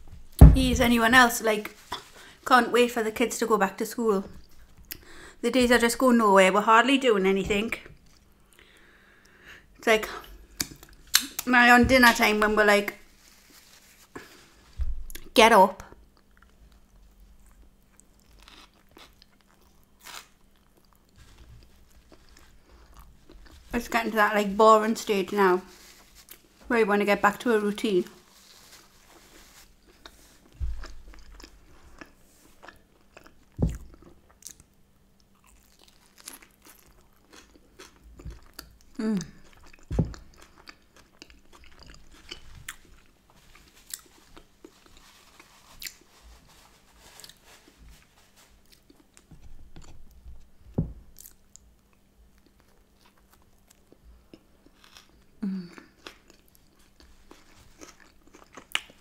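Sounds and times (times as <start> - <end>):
person chewing food: 16.2 - 23.7, 28.2 - 46.2, 48.6 - 59.0
chewing thumps: 29.9 - 34.2, 37.3 - 38.7, 39.5 - 43.0.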